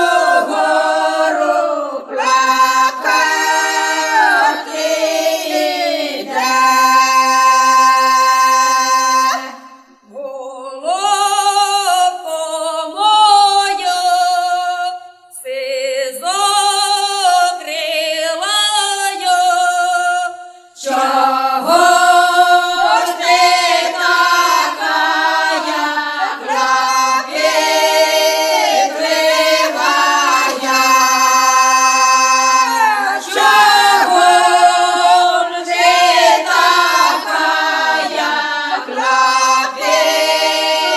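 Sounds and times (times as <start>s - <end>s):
choir singing: 0.0s - 10.3s, 20.8s - 40.9s.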